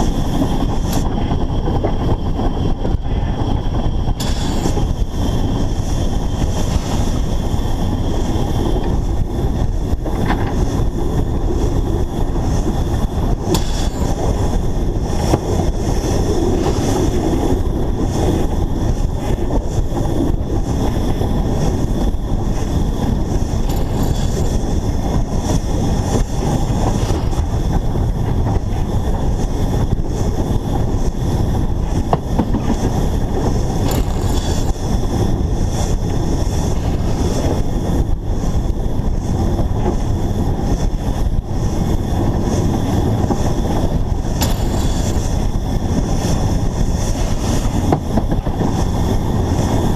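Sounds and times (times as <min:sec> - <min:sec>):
steam locomotive running: 0:00.0 - 0:49.9.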